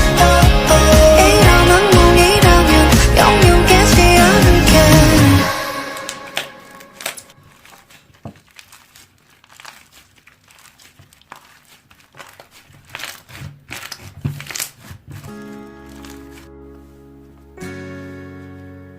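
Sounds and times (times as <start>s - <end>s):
slime crackling when pressed: 6.0s - 16.5s.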